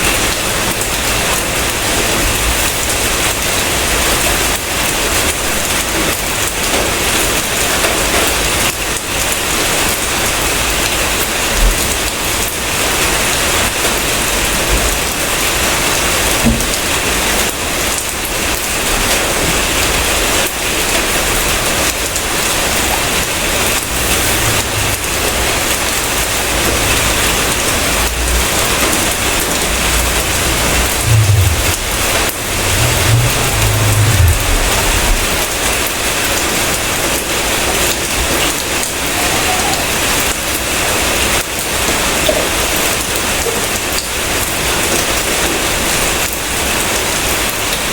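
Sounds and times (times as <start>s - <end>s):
heavy rain hissing: 0.0s - 47.9s
low rumble: 23.4s - 36.4s.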